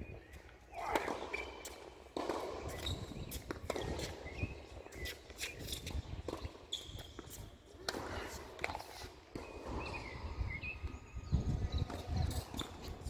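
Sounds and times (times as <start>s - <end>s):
footsteps on tennis court: 0.3s - 10.3s
shoe squeaks: 2.6s - 7.5s, 11.6s - 13.0s.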